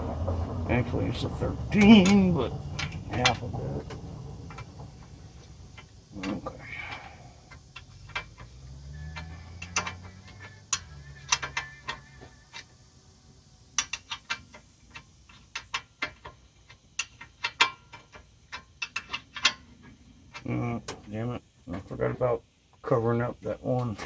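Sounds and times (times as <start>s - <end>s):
ratchet wrench clicking: 5.4s - 12.8s, 13.7s - 20.6s.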